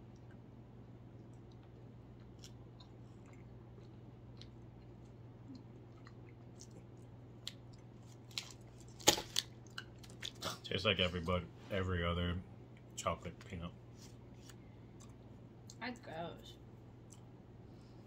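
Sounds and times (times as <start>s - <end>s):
steady low hum: 0.0s - 18.0s
chocolate bar chewing crunches: 1.2s - 10.6s.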